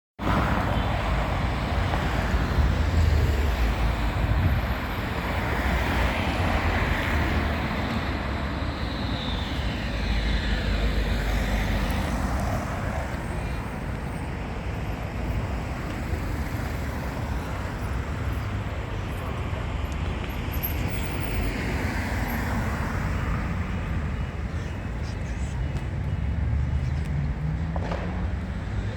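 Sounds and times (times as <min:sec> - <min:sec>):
tram running: 0:00.2 - 0:28.6
street traffic: 0:00.2 - 0:28.9
high whine falling in pitch: 0:07.4 - 0:11.8.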